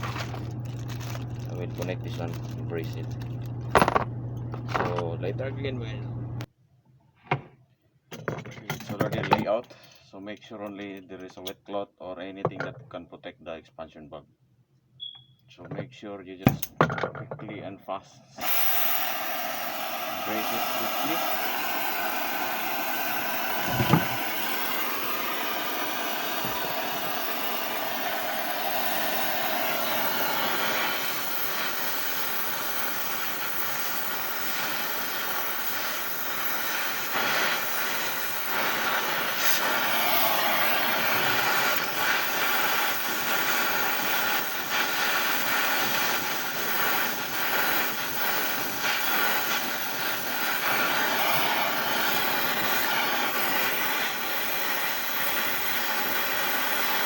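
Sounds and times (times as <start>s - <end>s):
brazing torch flame: 0.0s - 5.2s, 18.3s - 57.0s.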